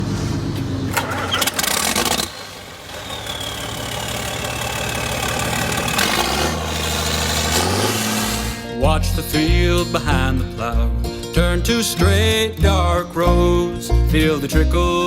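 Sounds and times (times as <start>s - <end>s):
tractor engine running: 0.0s - 8.9s.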